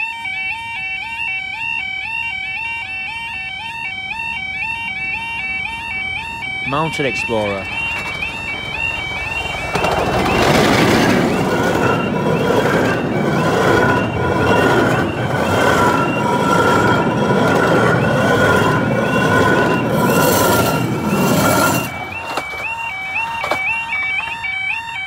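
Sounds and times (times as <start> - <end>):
level crossing two-tone alarm: 0.0 - 25.0
steam train carriages passing: 5.5 - 24.7.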